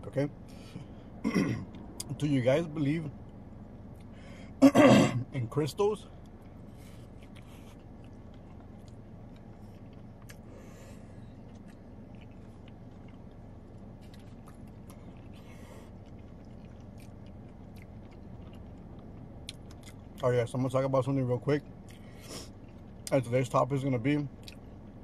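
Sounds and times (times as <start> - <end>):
steady low hum: 0.0 - 25.0
man chewing food: 6.2 - 20.2, 21.6 - 23.1, 24.4 - 25.0.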